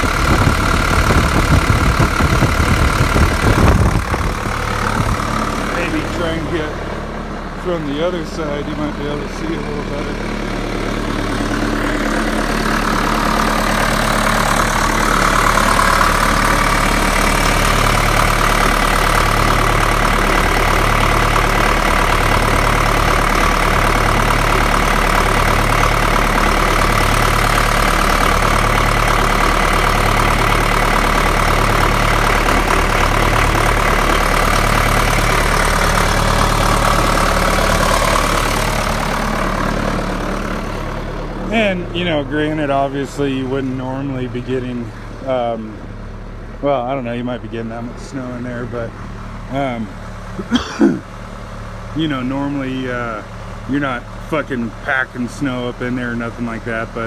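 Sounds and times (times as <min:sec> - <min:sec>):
backhoe diesel engine running: 0:00.0 - 0:57.0.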